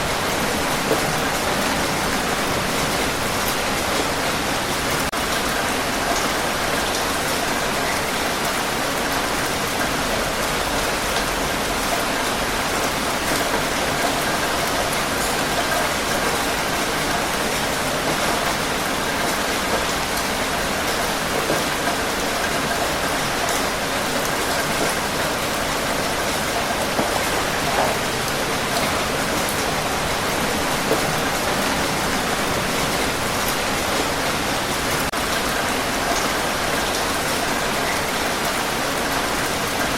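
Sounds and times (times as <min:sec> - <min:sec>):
heavy rain hissing: 0:00.0 - 0:39.9
raindrops ticking: 0:10.4 - 0:37.0.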